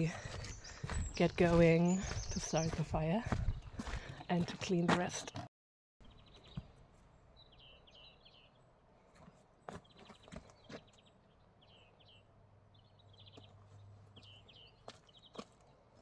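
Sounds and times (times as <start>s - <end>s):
songbird singing trills: 0.0s - 4.9s, 7.3s - 8.6s.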